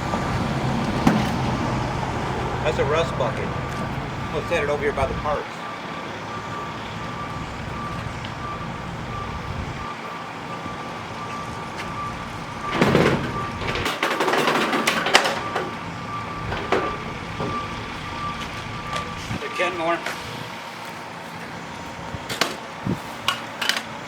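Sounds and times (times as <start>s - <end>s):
steady low rumble: 0.0s - 5.4s, 7.4s - 9.9s
high beeping tone: 2.6s - 13.8s.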